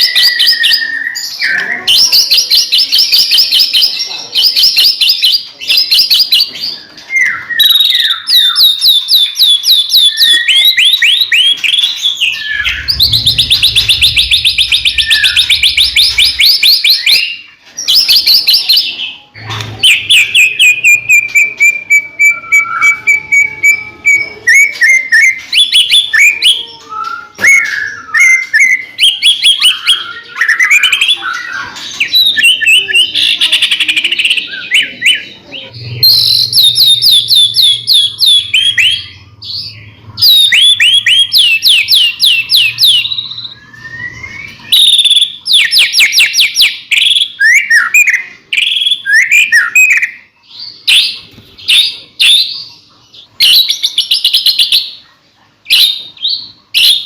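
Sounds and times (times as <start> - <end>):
songbird singing trills: 4.7 - 18.7.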